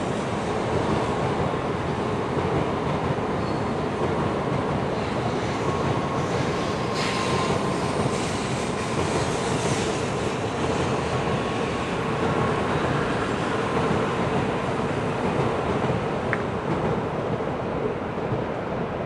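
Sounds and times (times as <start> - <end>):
train passing hiss: 0.0 - 2.2, 4.7 - 15.7
train wheels rumbling on rail: 0.0 - 19.0.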